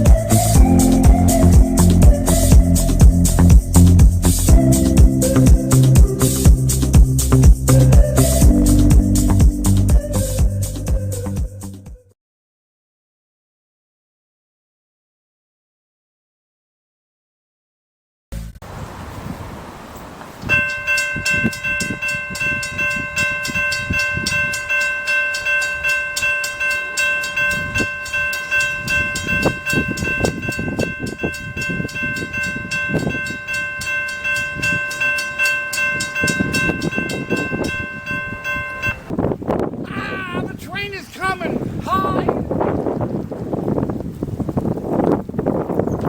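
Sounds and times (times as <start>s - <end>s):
low rumble of passing train: 18.6s - 39.2s.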